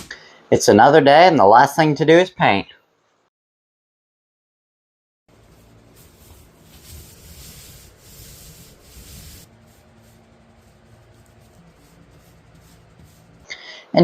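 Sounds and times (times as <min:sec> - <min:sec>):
applicator rubbing on wood: 0:06.2 - 0:13.5.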